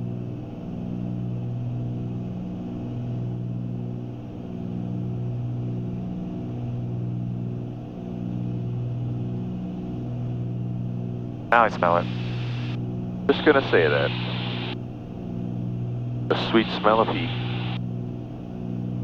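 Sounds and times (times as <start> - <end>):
twin piston engine drone: 11.6 - 14.8, 16.3 - 17.8.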